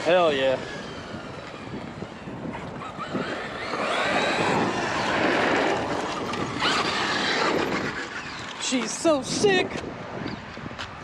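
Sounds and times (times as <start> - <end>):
rc truck motor whining: 0.0 - 9.0
tyres rushing over ground: 2.8 - 9.1.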